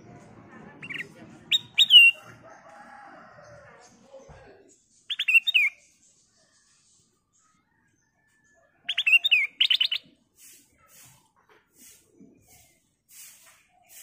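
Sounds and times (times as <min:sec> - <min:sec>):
bird singing whistled notes: 0:00.8 - 0:02.2, 0:05.1 - 0:05.8.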